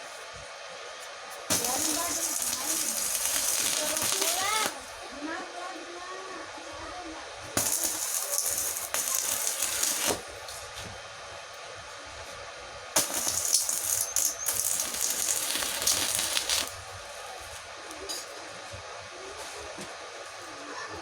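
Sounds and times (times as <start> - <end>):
welding arc crackling and sizzling: 1.3 - 5.1, 7.5 - 10.7, 12.9 - 18.0.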